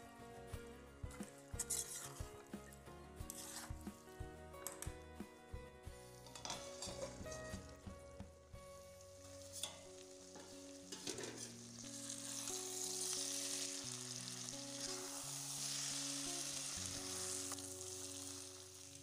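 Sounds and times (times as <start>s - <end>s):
soft background music: 0.0s - 19.0s
potatoes sizzling in a pan: 6.0s - 7.9s, 8.6s - 19.0s.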